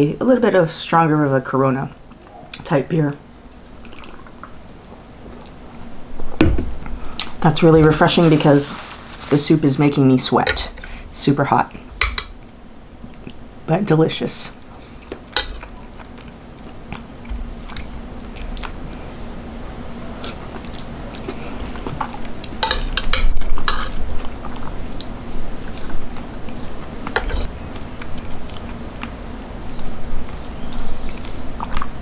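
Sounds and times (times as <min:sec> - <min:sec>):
chewing crispy food: 0:14.7 - 0:32.0.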